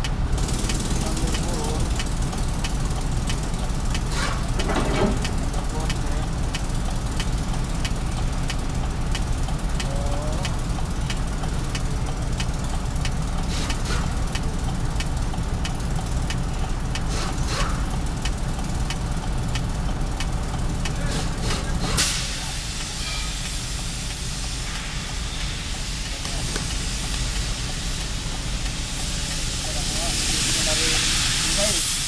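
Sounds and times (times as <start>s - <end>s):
diesel truck engine idling: 0.0s - 32.0s
regular engine tick: 0.0s - 32.0s
steady hiss: 20.8s - 32.0s.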